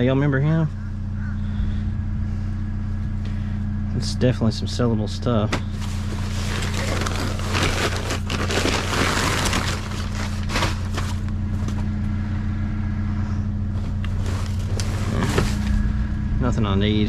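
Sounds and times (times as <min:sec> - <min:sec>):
vehicle engine idling: 0:00.0 - 0:17.0
rustling and clattering of trash: 0:05.5 - 0:11.9, 0:13.7 - 0:15.8.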